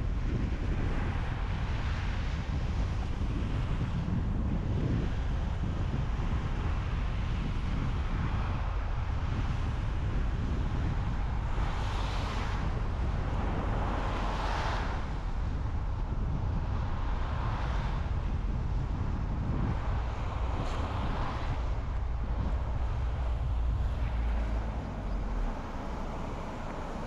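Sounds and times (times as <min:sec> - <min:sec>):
road and tyre rumble: 0:00.0 - 0:27.0
traffic passing whooshes: 0:00.0 - 0:27.0.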